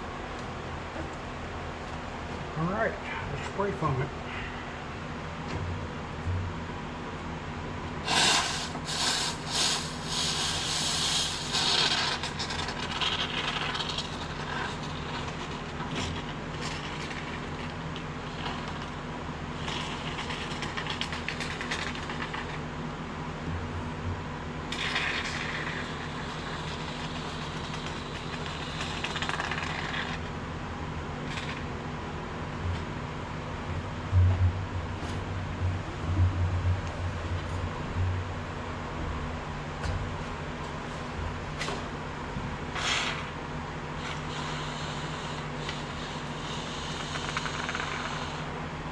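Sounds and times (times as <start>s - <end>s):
steady low hum: 0.0s - 48.9s
spray foam can hissing: 8.0s - 14.3s.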